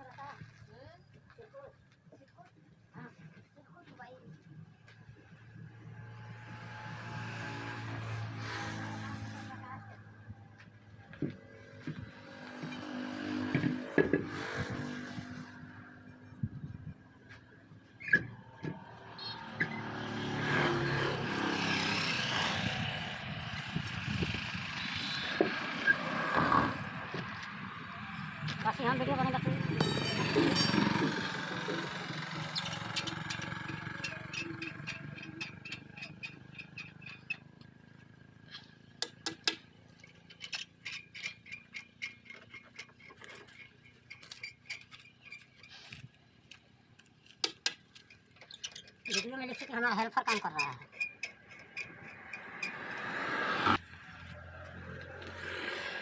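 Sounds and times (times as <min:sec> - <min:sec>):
vehicle engine running: 0:21.3 - 0:39.0
sharp metal clinks: 0:29.6 - 0:31.5.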